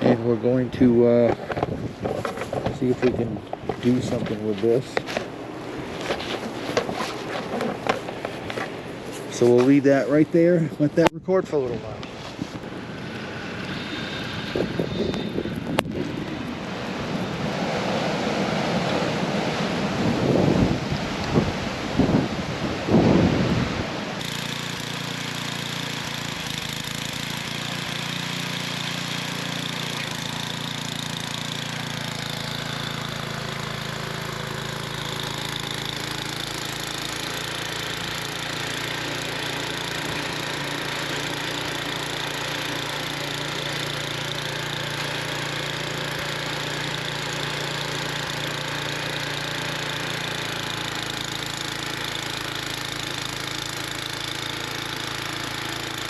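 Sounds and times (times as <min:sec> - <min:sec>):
snowblower engine running: 0:00.0 - 0:56.0
wind on microphone: 0:01.4 - 0:04.4, 0:13.9 - 0:17.7, 0:19.6 - 0:24.1.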